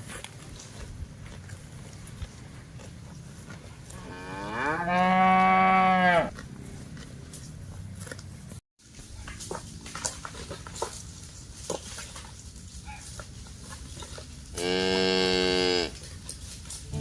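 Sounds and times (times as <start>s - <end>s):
cow mooing: 4.0s - 6.3s, 14.6s - 16.0s.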